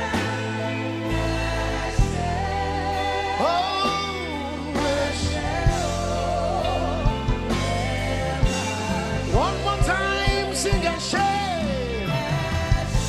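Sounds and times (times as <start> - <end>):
band playing sustained chords: 0.0 - 13.0.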